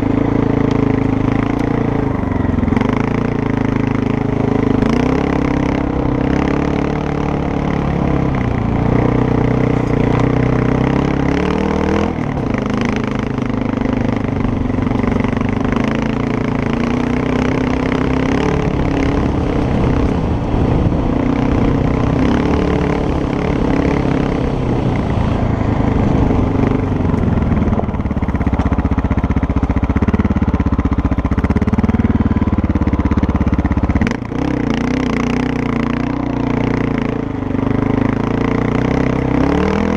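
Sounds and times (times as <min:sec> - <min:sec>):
motorcycle engine revving: 0:00.0 - 0:39.9
wind rushing: 0:18.2 - 0:28.3.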